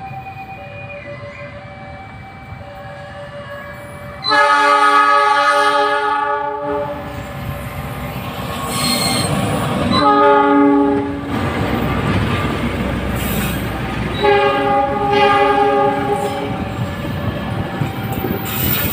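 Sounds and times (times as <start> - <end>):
passing train running: 0.0 - 18.9
train horn blasts: 3.3 - 7.1, 9.9 - 11.3, 14.1 - 16.9.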